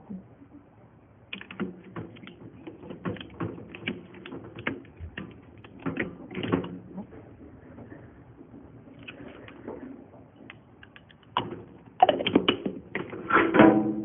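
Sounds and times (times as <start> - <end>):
hard objects clicking and clattering: 1.3 - 13.6.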